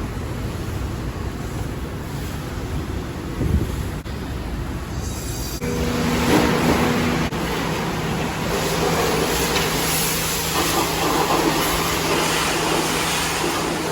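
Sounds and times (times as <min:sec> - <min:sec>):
vehicle engine and road noise: 0:00.0 - 0:13.9.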